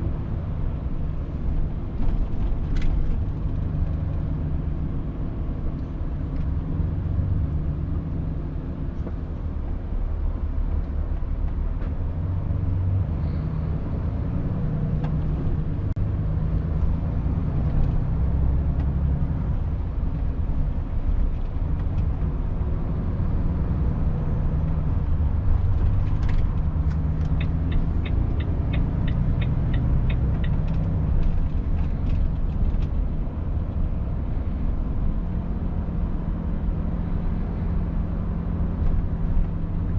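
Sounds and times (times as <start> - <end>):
truck engine and road rumble: 0.0 - 39.9
even ticks: 27.2 - 30.9.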